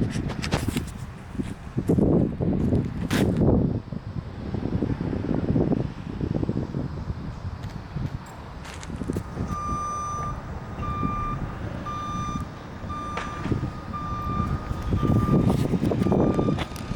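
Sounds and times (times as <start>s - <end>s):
low engine rumble: 0.0s - 16.9s
reversing alarm beeping: 9.5s - 16.8s.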